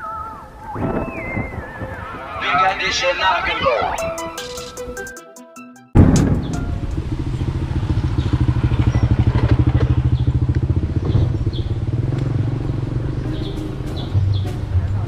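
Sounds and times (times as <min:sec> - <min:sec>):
high chirps: 0:00.0 - 0:09.4
vehicle engine running: 0:06.0 - 0:15.0.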